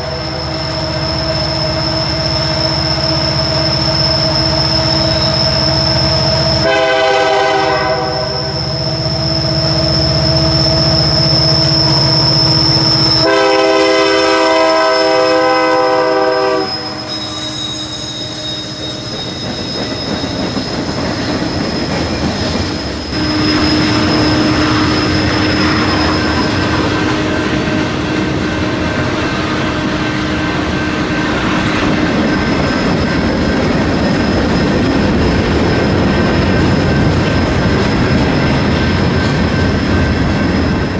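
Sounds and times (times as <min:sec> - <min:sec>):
high wheel squeal: 0:00.0 - 0:40.9
train rumble: 0:00.0 - 0:40.9
train air horn: 0:06.6 - 0:08.7, 0:13.2 - 0:18.7, 0:23.1 - 0:28.1.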